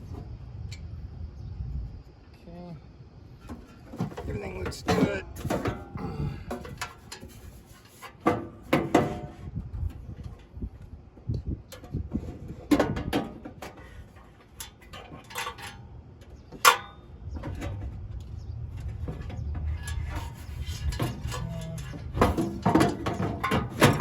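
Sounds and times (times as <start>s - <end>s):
low steady rumble: 0.0s - 7.6s, 17.0s - 24.0s
metal grill parts clicking: 12.7s - 24.0s.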